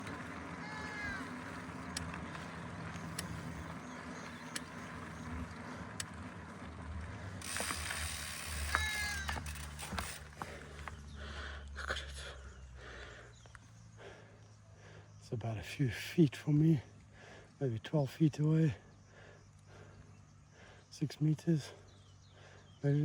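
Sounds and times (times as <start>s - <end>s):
freewheel ticks: 0.0s - 11.1s
bike tyres rumbling on dirt: 0.0s - 11.6s
brake squeals: 0.0s - 16.0s.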